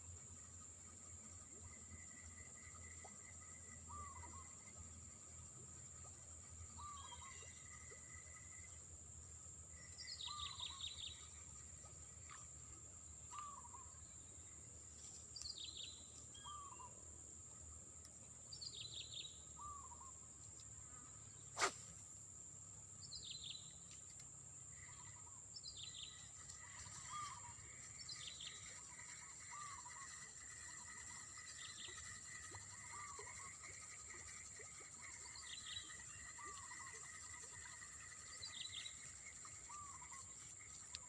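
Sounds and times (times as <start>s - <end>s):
high-pitched insect drone: 26.0s - 41.0s.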